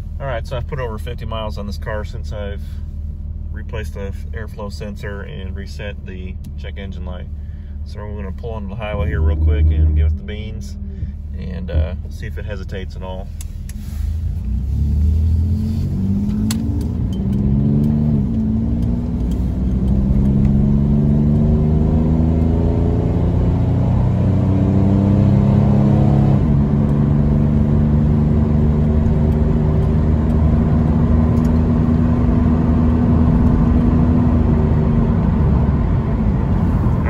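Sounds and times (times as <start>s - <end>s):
car engine accelerating: 3.8s - 37.0s
man speaking: 7.9s - 13.3s.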